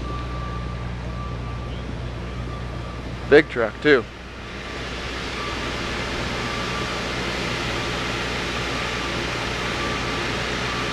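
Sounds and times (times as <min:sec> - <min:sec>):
machinery humming and hissing: 0:00.0 - 0:10.9.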